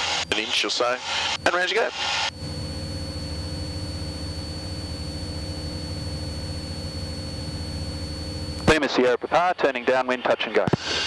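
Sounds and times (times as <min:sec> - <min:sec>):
propeller plane engine droning: 0:00.0 - 0:08.8
thin high whine: 0:00.0 - 0:09.5.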